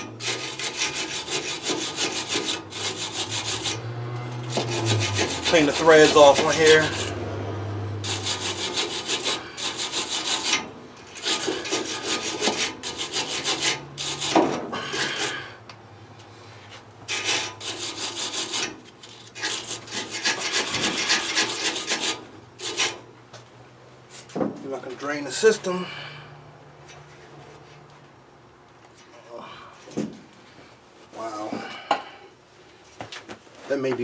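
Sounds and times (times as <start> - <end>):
scrubbing metal pipe threads: 0.0 - 7.2, 8.0 - 15.5, 17.1 - 23.0.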